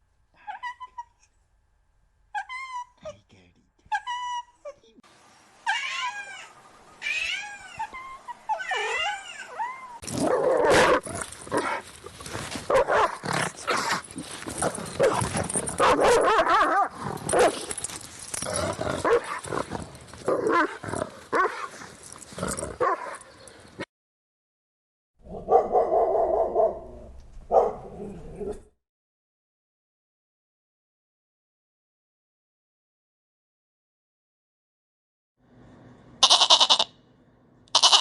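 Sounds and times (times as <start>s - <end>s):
cat meowing: 5.7s - 10.0s, 36.2s - 36.9s, 37.8s - 38.0s
dogs barking and growling: 7.8s - 23.8s, 25.2s - 28.7s.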